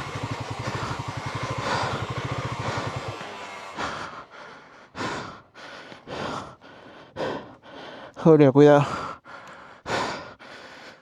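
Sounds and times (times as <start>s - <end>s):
motorcycle engine at low revs: 0.0s - 6.1s
rider breathing hard: 0.0s - 11.0s.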